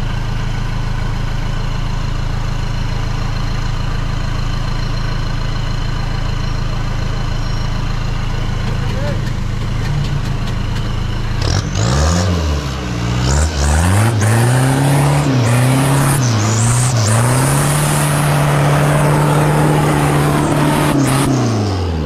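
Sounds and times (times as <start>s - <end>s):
tyres churning dirt: 8.3s - 12.4s, 13.2s - 22.0s
engine revving hard: 11.3s - 22.0s.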